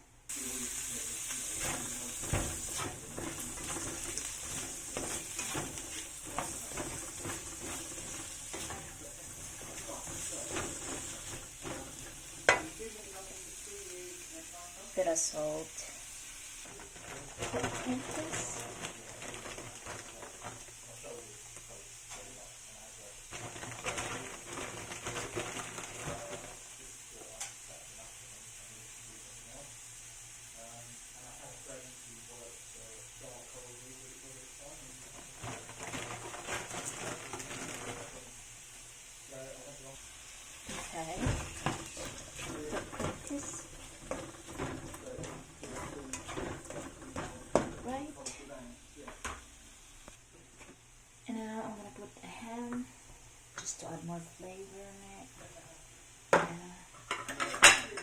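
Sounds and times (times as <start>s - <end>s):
food sizzling in a frying pan: 0.0s - 58.0s
spatula scraping a pan: 0.8s - 13.2s, 16.6s - 20.7s, 23.3s - 26.6s, 35.0s - 38.3s, 40.6s - 47.9s.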